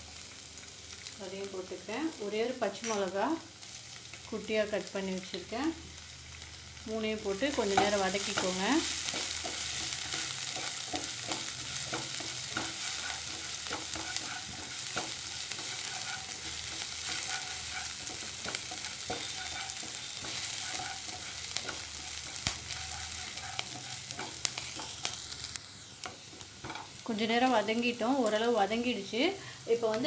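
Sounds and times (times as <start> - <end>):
garlic sizzling in hot oil: 0.0 - 30.0
spatula scraping and tapping pan: 7.6 - 27.0.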